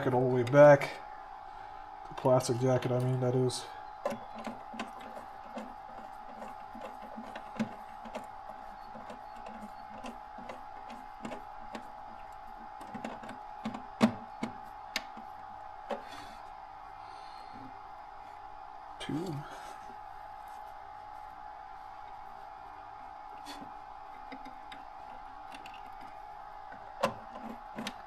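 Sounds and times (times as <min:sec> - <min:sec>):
tool working on cable: 0:02.1 - 0:16.1, 0:23.3 - 0:28.0.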